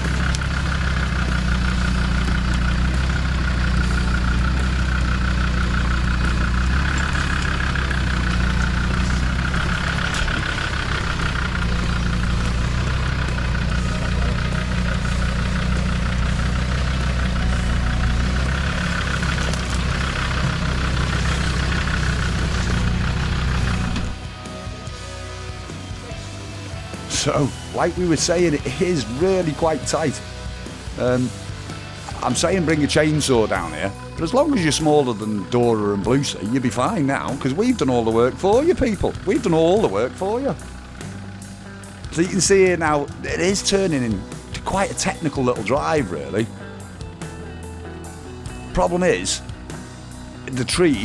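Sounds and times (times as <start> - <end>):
truck engine running at low revs: 0.0 - 51.0.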